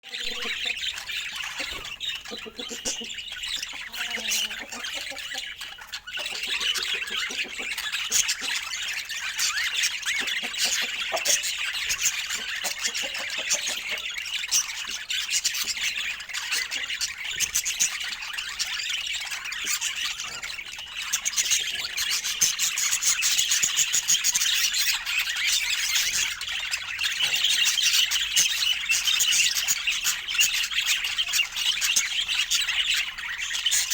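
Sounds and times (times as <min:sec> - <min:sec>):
budgerigars chattering and squawking: 0:00.0 - 0:33.9.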